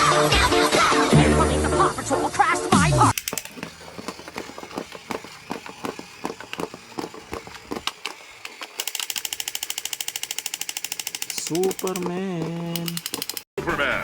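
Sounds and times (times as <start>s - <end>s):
fast clicking rattle: 3.1s - 13.5s
irregular clicks and taps: 3.2s - 13.5s.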